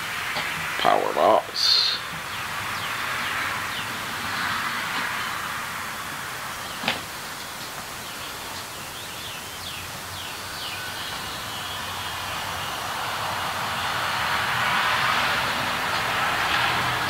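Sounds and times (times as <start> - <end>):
outdoor hiss: 0.0 - 17.0
bird chirps: 6.6 - 12.8.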